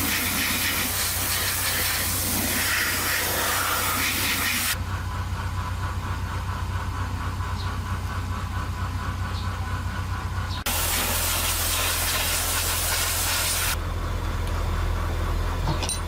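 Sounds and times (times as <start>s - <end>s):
loud hiss: 0.0s - 4.8s, 10.7s - 13.8s
low machine hum: 4.8s - 12.6s.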